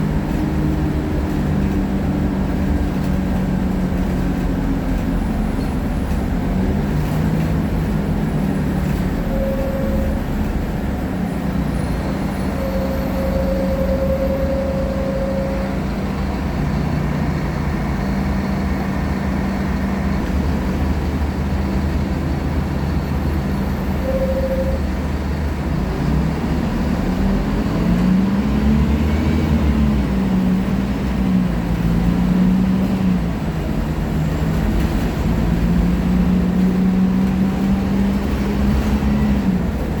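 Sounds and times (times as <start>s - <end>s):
bus diesel engine: 0.0s - 40.0s
road and body rumble: 0.0s - 40.0s
short higher tone: 9.2s - 10.7s, 12.5s - 15.9s, 24.0s - 25.0s.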